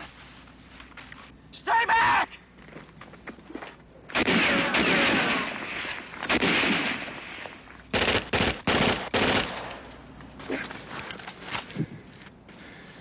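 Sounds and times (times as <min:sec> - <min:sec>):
rifle and automatic gunfire: 0:04.1 - 0:09.8
separate gunshots: 0:04.1 - 0:09.9.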